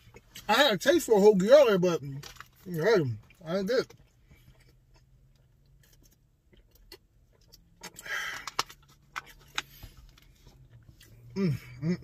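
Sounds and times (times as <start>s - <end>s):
food packaging clicks and rustles: 2.0s - 2.9s, 3.8s - 10.9s.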